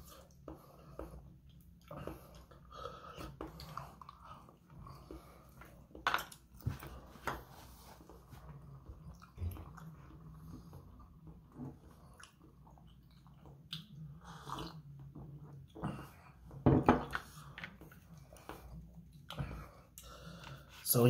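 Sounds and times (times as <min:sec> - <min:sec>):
person chewing: 0:00.0 - 0:06.5, 0:08.0 - 0:16.3.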